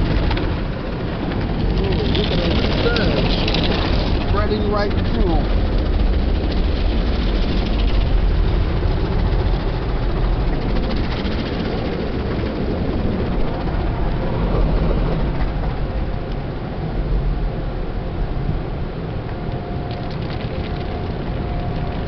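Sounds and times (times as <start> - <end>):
water spraying over car: 0.0 - 5.5
car wash machinery rumbling: 0.0 - 22.0.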